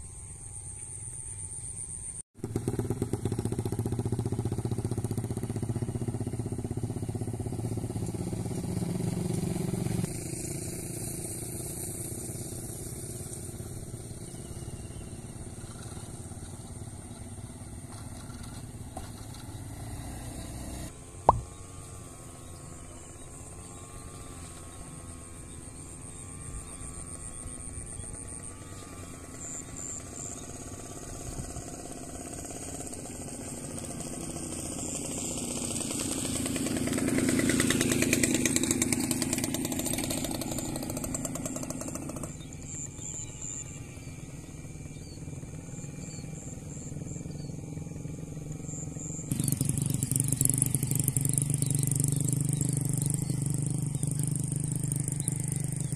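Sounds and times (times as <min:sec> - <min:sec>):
small engine running: 0:00.0 - 0:55.9.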